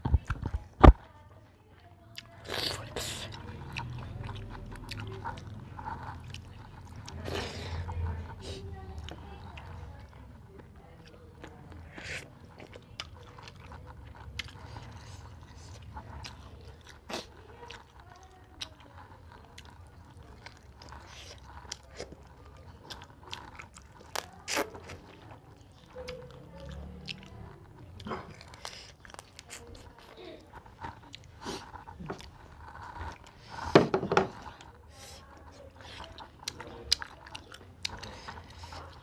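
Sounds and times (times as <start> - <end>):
person chewing chicken: 2.0 - 39.0.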